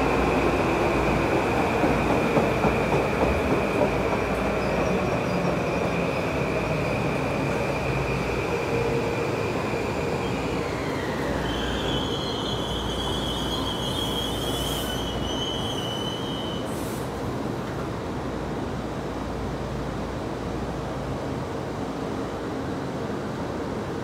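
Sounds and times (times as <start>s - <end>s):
train wheels rumbling on rails: 0.0s - 18.2s
high wheel squeal: 9.6s - 17.0s.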